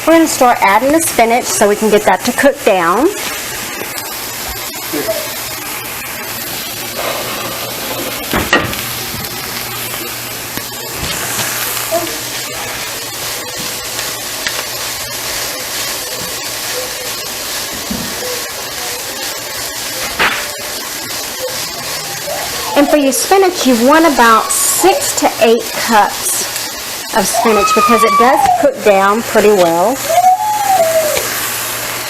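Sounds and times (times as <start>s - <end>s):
spinach sizzling in oil: 0.0s - 32.0s.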